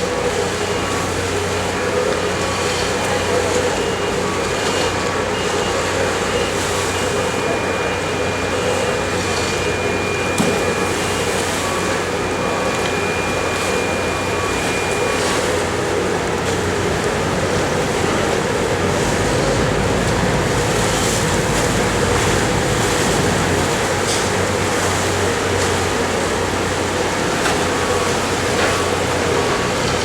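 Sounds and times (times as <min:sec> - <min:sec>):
wind: 0:00.0 - 0:30.0
ferry engines humming: 0:05.1 - 0:30.0.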